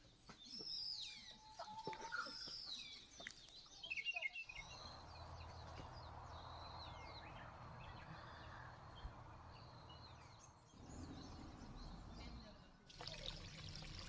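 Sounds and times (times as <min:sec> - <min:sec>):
songbirds chirping: 0:00.0 - 0:14.0
low rumble: 0:04.7 - 0:12.8.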